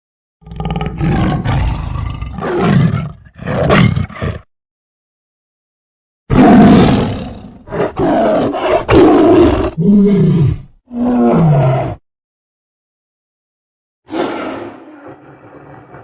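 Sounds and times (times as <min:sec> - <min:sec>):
tiger roaring and growling: 0:00.4 - 0:04.5, 0:06.3 - 0:12.0, 0:14.1 - 0:16.0.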